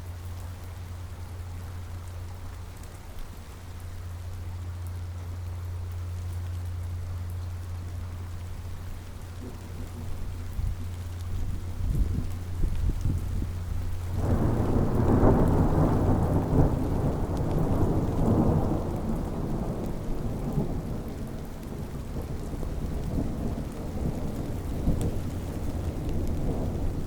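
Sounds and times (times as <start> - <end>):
steady rain: 0.0 - 27.0
thunder rolling: 9.2 - 21.3.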